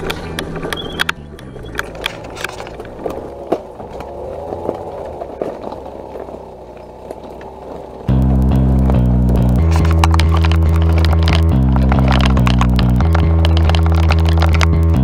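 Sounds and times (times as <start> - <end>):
music with heavy bass: 0.0 - 2.8, 8.1 - 15.0
clicks: 0.0 - 15.0
scooter rolling and rattling: 0.0 - 15.0
wavering whine: 0.0 - 15.0.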